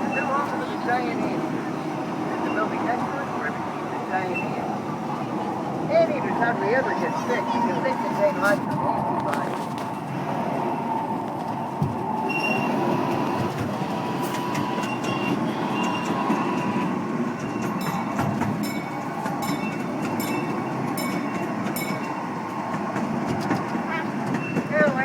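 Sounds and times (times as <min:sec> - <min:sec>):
small train rumbling: 0:00.0 - 0:25.0
wheels squealing: 0:00.0 - 0:25.0
wheels clicking over rail joints: 0:11.2 - 0:25.0.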